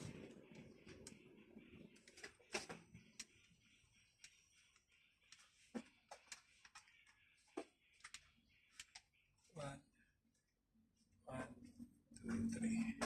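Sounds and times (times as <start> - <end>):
faint clicks and taps: 1.9 - 9.2.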